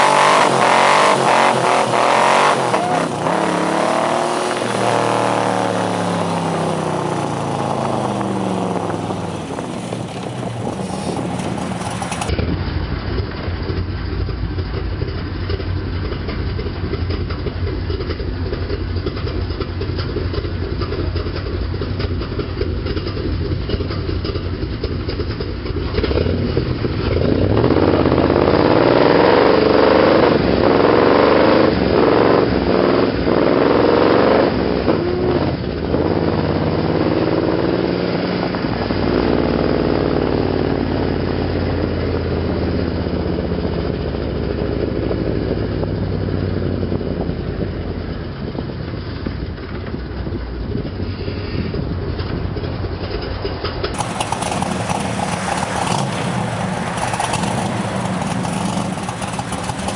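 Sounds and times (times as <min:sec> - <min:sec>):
car engine revving in burnout: 0:00.0 - 0:13.3, 0:22.3 - 0:47.3, 0:53.8 - 0:59.9
car engine idling low: 0:05.7 - 0:28.3, 0:40.7 - 0:59.9.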